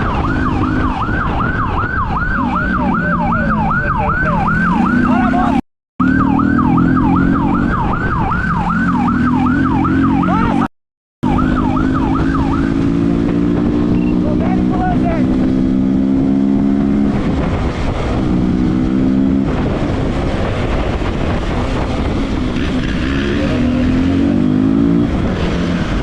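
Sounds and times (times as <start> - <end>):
police siren yelping: 0.0 - 13.2
vehicle engine revving: 2.2 - 26.0.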